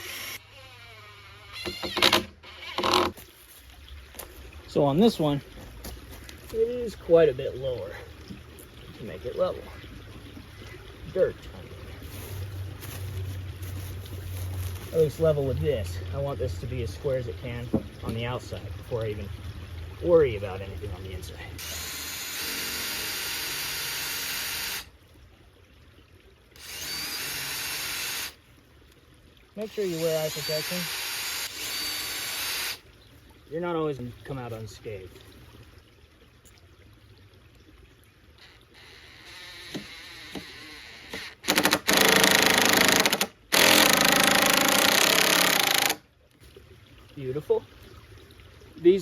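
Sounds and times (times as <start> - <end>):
power drill driving screw into wood: 0.0 - 3.1, 21.6 - 24.9, 26.6 - 28.4, 29.7 - 32.8, 38.8 - 46.0.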